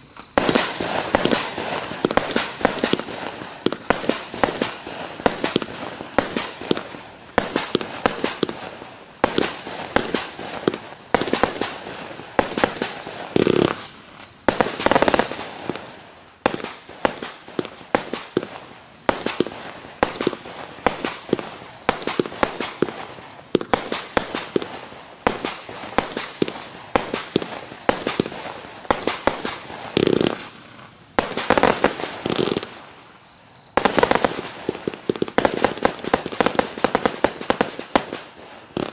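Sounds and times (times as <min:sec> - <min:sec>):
fireworks crackle: 0:00.0 - 0:38.9
fireworks launch thumps and bangs: 0:00.1 - 0:08.6, 0:09.2 - 0:30.6.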